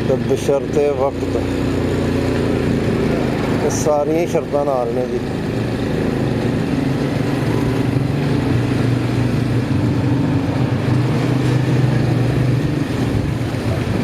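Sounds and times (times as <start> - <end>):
motorcycle engine hum: 0.0 - 14.0
road and wind noise: 0.0 - 14.0.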